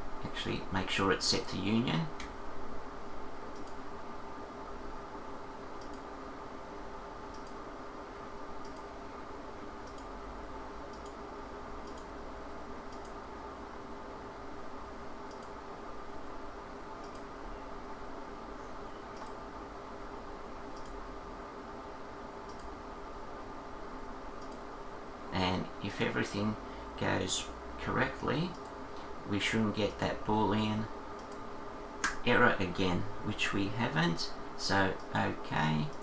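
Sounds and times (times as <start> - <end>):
low electrical hum: 0.0 - 36.0
computer mouse clicking: 3.5 - 3.8, 5.8 - 6.1, 7.3 - 7.6, 8.6 - 8.9, 9.8 - 10.2, 10.9 - 11.2, 11.8 - 12.2, 12.9 - 13.2, 15.3 - 15.6, 17.0 - 17.3, 19.1 - 19.4, 20.7 - 21.0, 22.5 - 22.8, 24.4 - 24.6, 28.5 - 29.1, 31.1 - 32.2.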